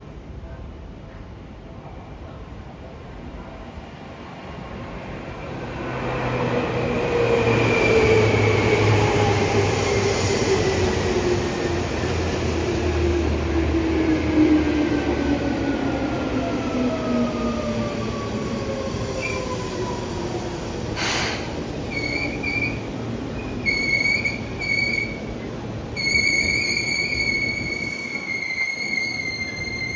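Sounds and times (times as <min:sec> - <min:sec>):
high brake squeal: 0:21.0 - 0:25.3, 0:26.0 - 0:29.9.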